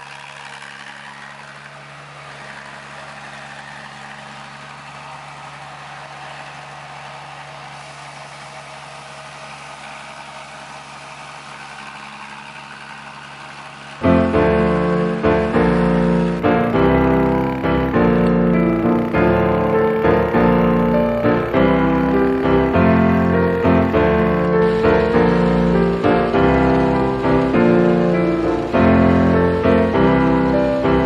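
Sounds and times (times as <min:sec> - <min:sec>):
machine humming: 0:00.0 - 0:31.0
piano music: 0:14.0 - 0:31.0.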